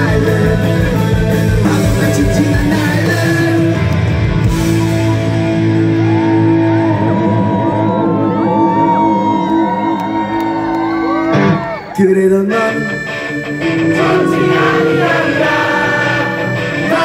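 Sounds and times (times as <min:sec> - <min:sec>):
drums: 0:00.0 - 0:09.9, 0:13.4 - 0:17.0
live punk rock band: 0:00.0 - 0:11.9, 0:12.5 - 0:17.0
ringing guitar chords: 0:00.0 - 0:17.0.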